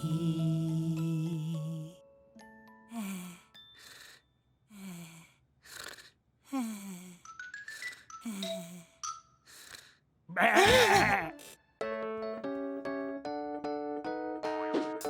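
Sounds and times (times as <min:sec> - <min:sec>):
cartoon snoring: 0:05.7 - 0:06.7
loud voiced sound: 0:10.3 - 0:11.4.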